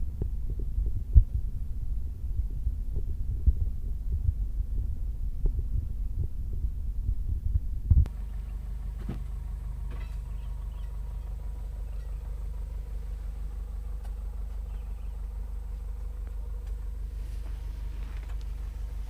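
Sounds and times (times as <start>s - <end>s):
truck engine droning: 8.0s - 19.0s.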